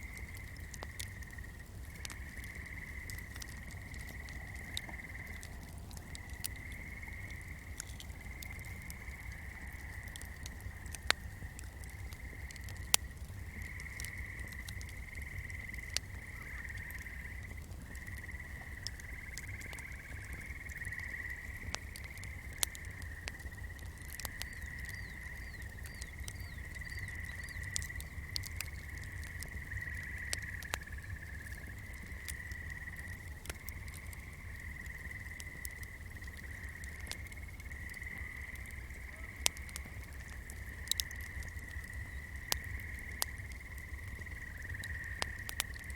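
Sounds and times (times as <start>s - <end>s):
flame crackling and popping: 0.0s - 45.9s
frogs trilling: 0.0s - 45.9s.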